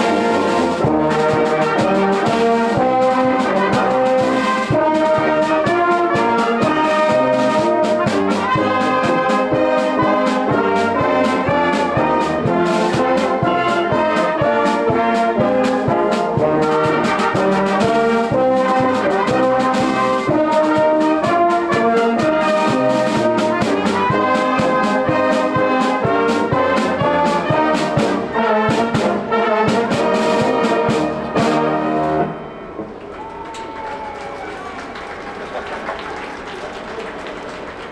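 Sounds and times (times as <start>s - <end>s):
drum strikes: 0.0s - 14.3s
trumpets and trombones playing chords: 0.0s - 33.4s.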